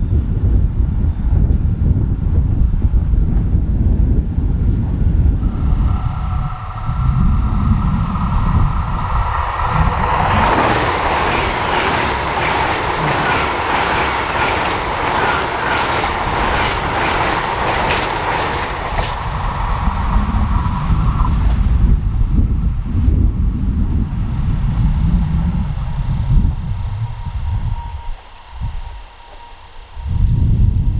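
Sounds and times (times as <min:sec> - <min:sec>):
wind rumble on microphone: 0:00.0 - 0:30.9
train passing: 0:01.2 - 0:30.9
wheels clicking over rails: 0:05.3 - 0:22.0.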